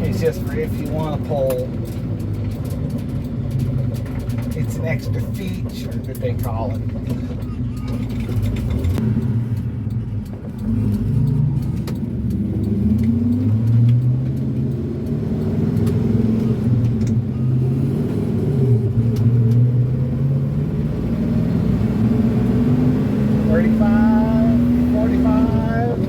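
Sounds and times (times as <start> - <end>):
pickup truck engine pulling: 0.0 - 26.0.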